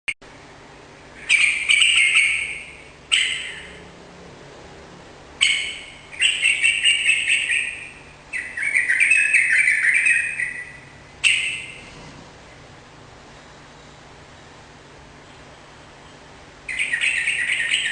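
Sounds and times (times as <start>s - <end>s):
bird singing chattering phrases: 1.1s - 3.8s, 5.4s - 11.9s, 15.2s - 17.9s.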